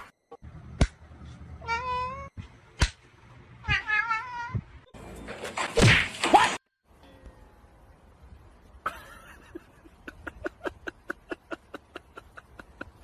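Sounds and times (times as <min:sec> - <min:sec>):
sharp smack: 0:00.8 - 0:01.0, 0:02.8 - 0:03.0
cat meowing: 0:01.6 - 0:02.3.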